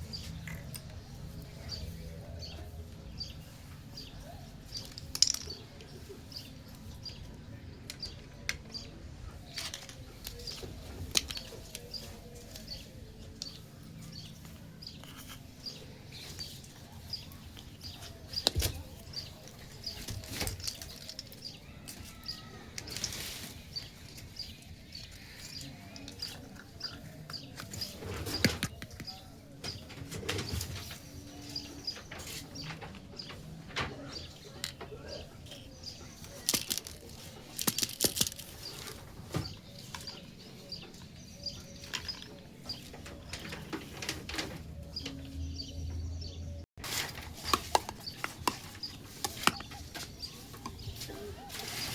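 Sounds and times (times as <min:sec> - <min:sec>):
plastic toy pieces clicking: 0:36.3 - 0:38.5.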